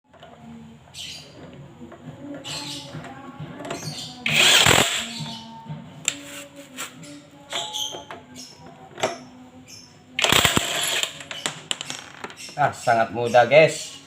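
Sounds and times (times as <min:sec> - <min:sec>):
background music: 0:00.1 - 0:12.0
impact wrench burst: 0:04.2 - 0:05.2, 0:10.2 - 0:11.2.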